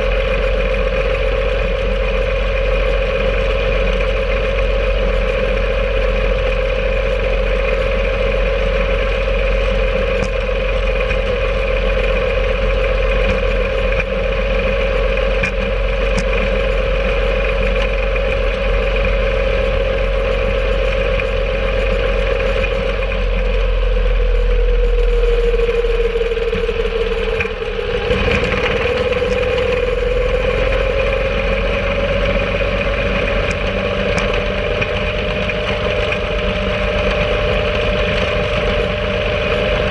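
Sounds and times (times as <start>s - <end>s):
rail cart engine running: 0.0s - 39.9s.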